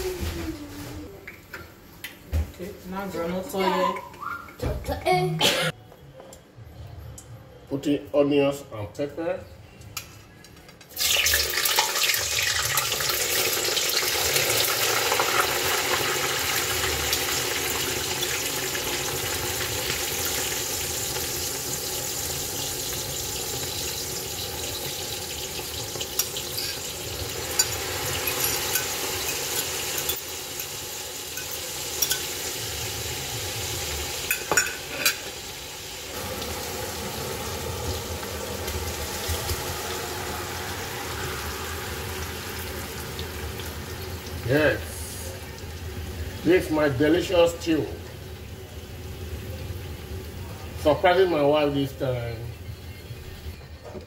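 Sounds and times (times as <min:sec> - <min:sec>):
onions sizzling in oil: 0:11.0 - 0:53.6.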